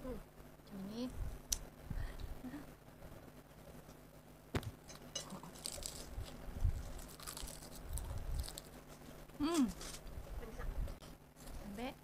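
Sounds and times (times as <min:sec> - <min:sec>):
noodles bitten and chewed: 0:05.3 - 0:09.0
crisp seaweed crackling: 0:05.4 - 0:08.9.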